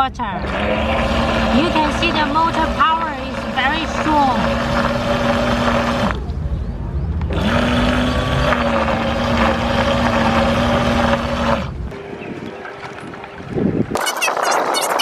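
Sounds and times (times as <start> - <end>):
propeller churning water: 0.2 - 6.3, 7.3 - 15.0
electric motor hum: 0.4 - 6.3, 7.3 - 12.9.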